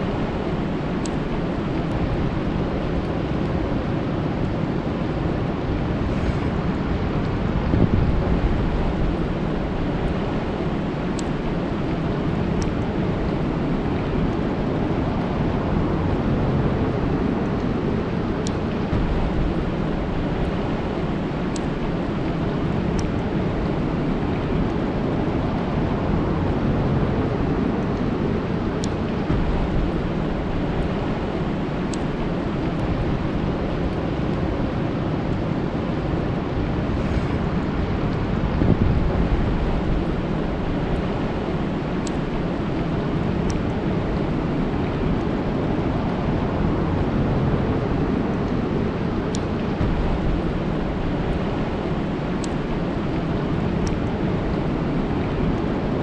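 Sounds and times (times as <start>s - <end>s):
faint ticks: 52.4s - 54.0s.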